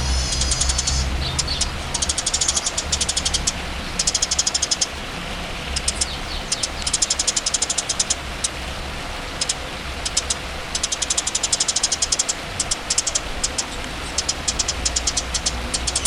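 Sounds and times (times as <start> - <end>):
songbird singing high notes: 0.0 - 4.9
steady low rumble: 0.0 - 7.2.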